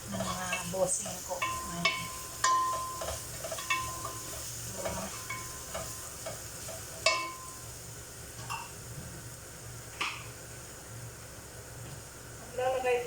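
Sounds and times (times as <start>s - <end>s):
garlic sizzling in a pan: 0.0s - 13.0s
metal utensil scraping pan: 0.1s - 7.5s.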